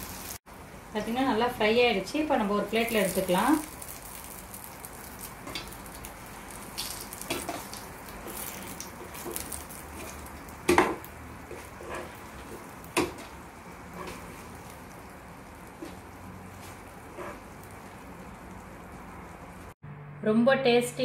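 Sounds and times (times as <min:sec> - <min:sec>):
eggplant slices sizzling in oil: 0:00.0 - 0:19.8
spatula scraping and tapping pan: 0:06.8 - 0:14.9, 0:15.6 - 0:18.5.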